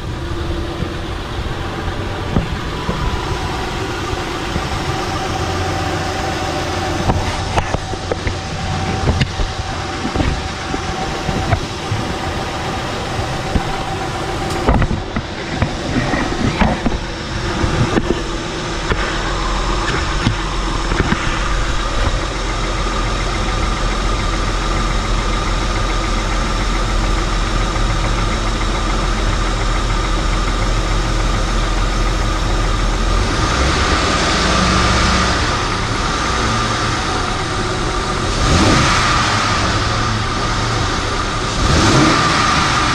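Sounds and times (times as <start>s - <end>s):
car engine idling: 0.0s - 42.9s
knocks and clicks: 13.5s - 19.1s.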